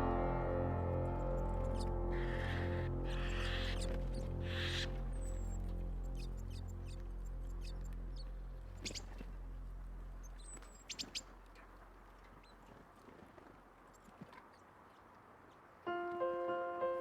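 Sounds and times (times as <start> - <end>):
soft music: 0.0 - 10.5, 15.9 - 17.0
faint outdoor background: 0.0 - 17.0
small birds chirping: 1.1 - 12.8.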